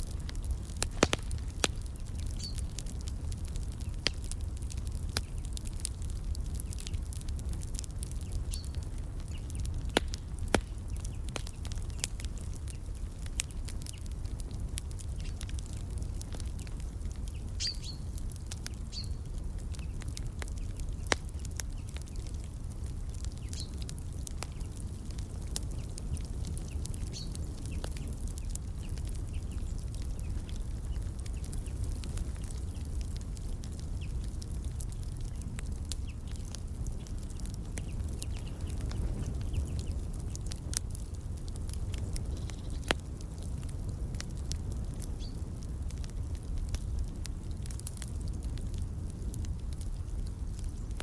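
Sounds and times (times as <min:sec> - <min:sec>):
fireplace crackling and popping: 0:00.0 - 0:51.0
bird chirps: 0:17.6 - 0:18.0.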